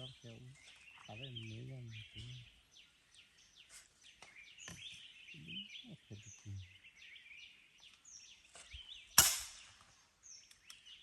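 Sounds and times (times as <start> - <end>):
small birds chirping: 0.0 - 11.0
sharp crack: 9.2 - 9.8.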